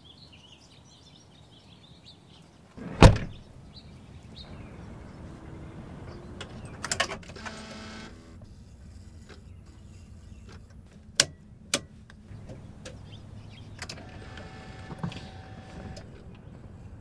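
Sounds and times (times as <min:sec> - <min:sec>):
car engine idling: 0:04.4 - 0:08.4.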